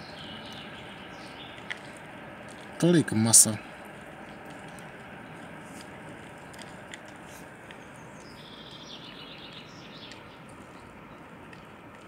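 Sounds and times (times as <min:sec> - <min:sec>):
bird chirping: 0:00.0 - 0:02.0, 0:07.7 - 0:11.3.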